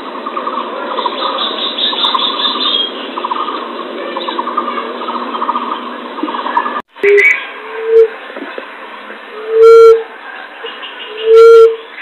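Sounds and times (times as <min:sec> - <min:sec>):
bird calls pulsed notes: 0:04.2 - 0:08.1, 0:11.0 - 0:12.0.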